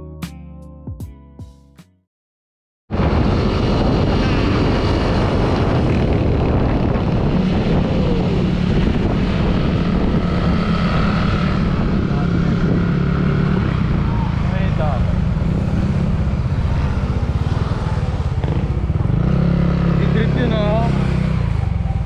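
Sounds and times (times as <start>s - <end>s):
plucked background music: 0.0s - 2.0s
wind on microphone: 2.9s - 20.0s
motorcycle engine: 2.9s - 22.0s.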